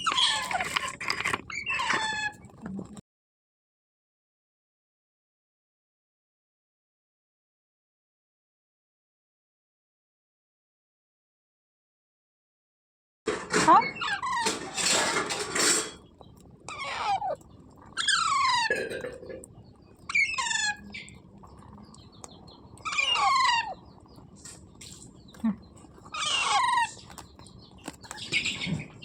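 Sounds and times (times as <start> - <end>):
parrot giving harsh calls: 0.0 - 0.6, 16.7 - 17.4, 18.0 - 19.2, 20.1 - 20.9, 22.8 - 23.8, 26.1 - 27.0.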